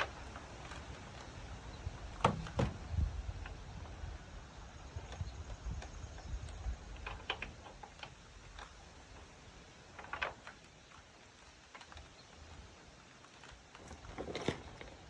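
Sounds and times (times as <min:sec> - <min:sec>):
door hardware clicks and rattles: 0:02.2 - 0:03.6, 0:06.4 - 0:08.7.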